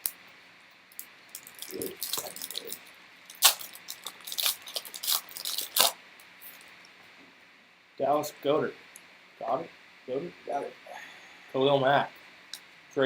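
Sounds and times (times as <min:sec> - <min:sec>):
foil wrappers crinkling: 0:00.9 - 0:06.7
sharp crackles and clicks: 0:00.9 - 0:06.7.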